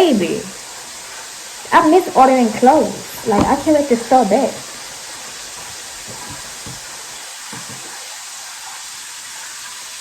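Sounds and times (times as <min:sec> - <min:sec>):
chicken sizzling in hot oil: 0:00.2 - 0:02.2, 0:04.8 - 0:10.0.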